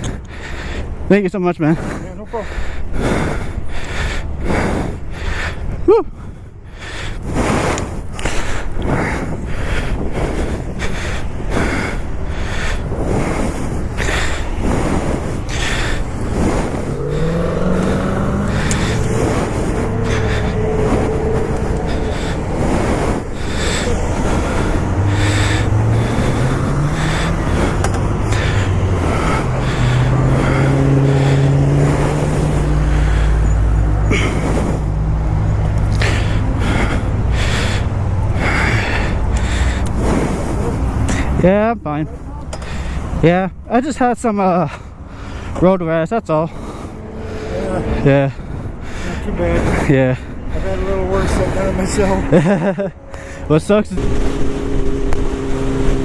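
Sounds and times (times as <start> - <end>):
wind buffeting microphone: 0.0 - 56.0
motorcycle engine accelerating: 16.2 - 34.8, 52.3 - 56.0.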